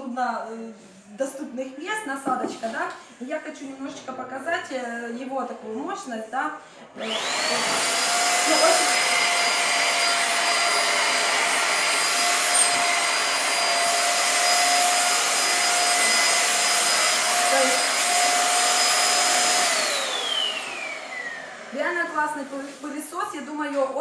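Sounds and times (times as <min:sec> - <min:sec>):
vacuum cleaner running: 0:06.9 - 0:23.2.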